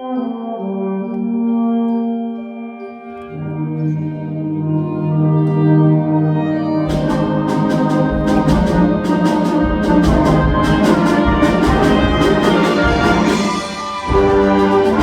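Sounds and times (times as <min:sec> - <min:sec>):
held brass chord: 0:03.2 - 0:15.0
concert band playing: 0:05.2 - 0:15.0
drums and cymbals: 0:06.9 - 0:15.0.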